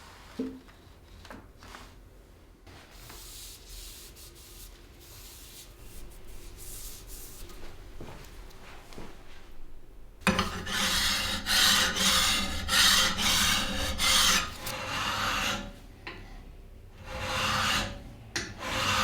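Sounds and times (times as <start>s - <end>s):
hand sanding metal: 3.0s - 15.6s.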